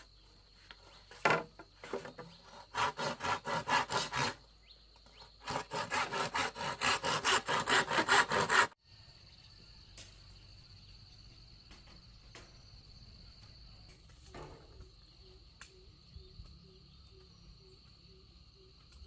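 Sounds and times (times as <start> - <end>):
hand saw cutting wood: 1.3 - 4.5, 5.1 - 8.8
faint high insect trill: 8.8 - 19.0.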